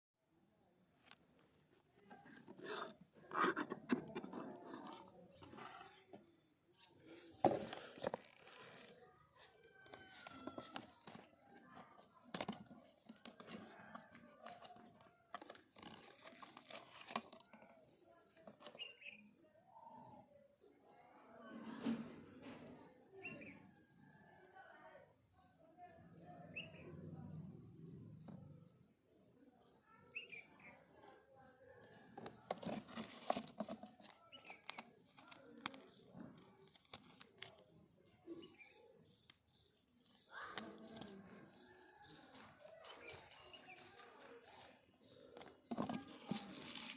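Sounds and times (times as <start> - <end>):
cardboard and plastic rustling: 7.2 - 17.7, 32.2 - 37.6, 45.4 - 46.9.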